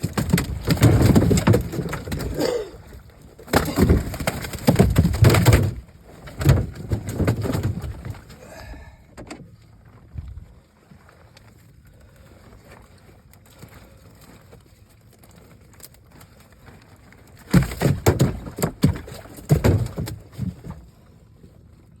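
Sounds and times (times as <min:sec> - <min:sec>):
loud thumps and knocks: 0:00.0 - 0:02.4, 0:03.5 - 0:05.8, 0:17.5 - 0:20.7.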